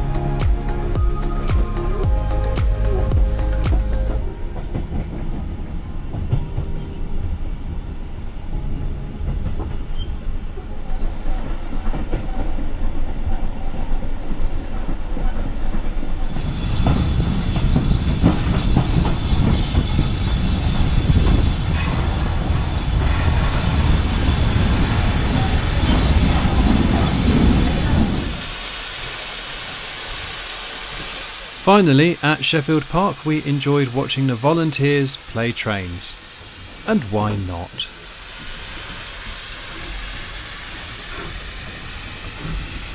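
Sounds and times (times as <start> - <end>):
train wheels clattering over rails: 16.3 - 31.6.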